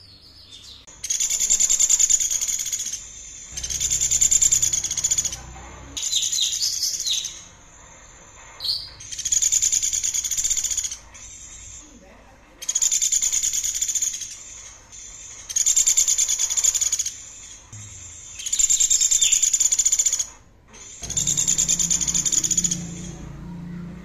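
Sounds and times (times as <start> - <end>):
songbird buzzy trill: 0.0 - 11.6, 12.7 - 24.0.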